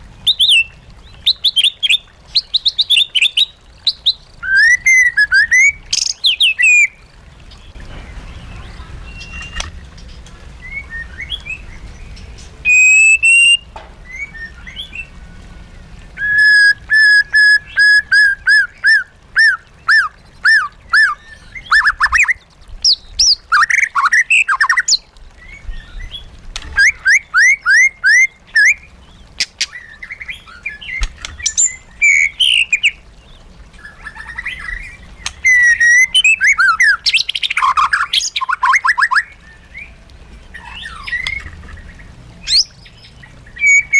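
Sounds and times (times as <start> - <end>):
bird singing whistles: 1.3 - 7.0, 9.1 - 9.7, 12.6 - 15.1, 16.2 - 28.9, 30.7 - 33.0, 34.2 - 40.0, 43.6 - 43.9.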